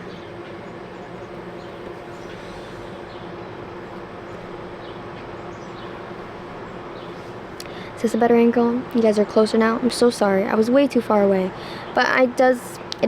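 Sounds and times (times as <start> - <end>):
outdoor background hum: 0.0 - 13.0.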